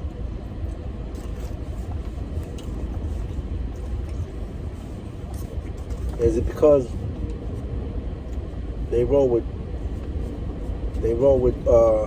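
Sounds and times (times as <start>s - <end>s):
car rumble from inside cabin: 0.0s - 12.0s.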